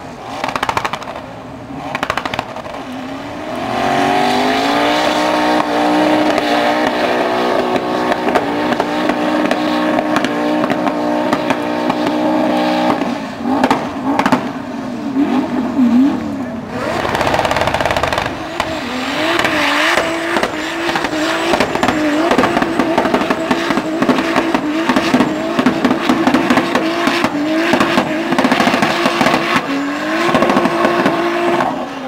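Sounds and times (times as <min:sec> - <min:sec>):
suv engine at full throttle: 0:00.0 - 0:32.0.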